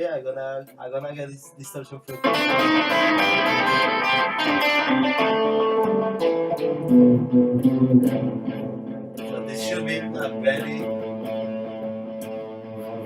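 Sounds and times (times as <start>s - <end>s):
distorted electric guitar notes: 2.1s - 13.0s.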